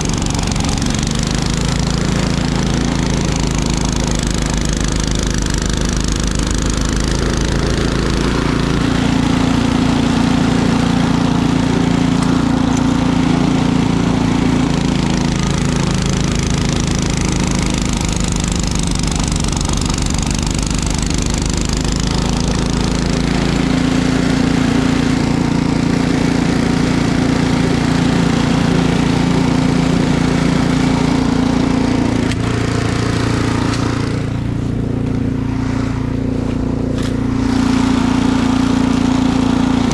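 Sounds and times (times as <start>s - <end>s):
small gasoline engine running: 0.0s - 39.9s
steady rushing noise: 19.5s - 38.9s.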